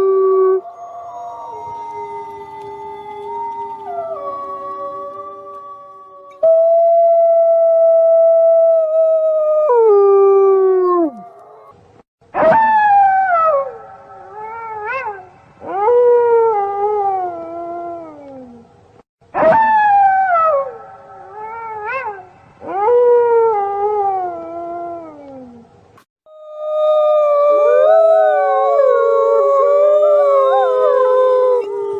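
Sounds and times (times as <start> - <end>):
wolves howling: 0.0 - 6.4, 26.3 - 31.9.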